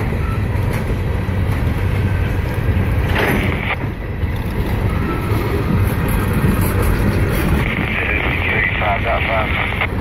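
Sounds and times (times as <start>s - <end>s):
wind buffeting microphone: 0.0s - 8.8s
train wheels rumbling on rails: 0.0s - 10.0s.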